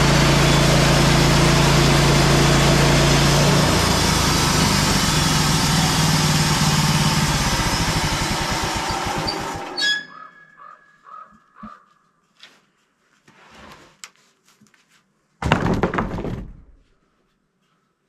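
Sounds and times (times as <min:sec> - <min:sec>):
small engine running: 0:00.0 - 0:09.9
brief squeaks: 0:09.2 - 0:10.5
loud clattering thump: 0:15.4 - 0:16.8.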